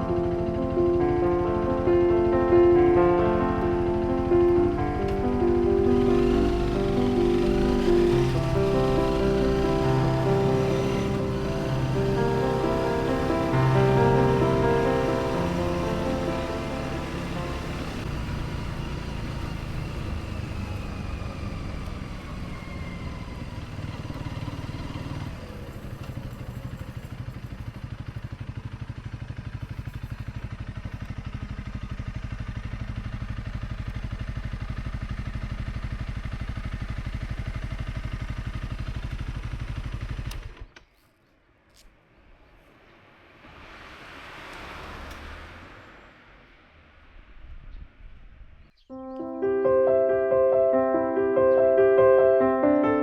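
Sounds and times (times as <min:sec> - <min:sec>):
motorcycle engine idling: 0:00.0 - 0:41.1
motorcycle engine slowing: 0:00.0 - 0:41.1.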